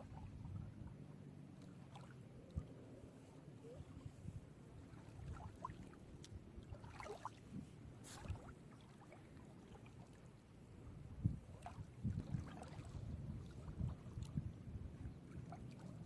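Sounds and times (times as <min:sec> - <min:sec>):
small waves lapping on beach: 0:00.0 - 0:10.8, 0:11.4 - 0:14.4, 0:15.2 - 0:16.0
water splash: 0:06.7 - 0:07.4.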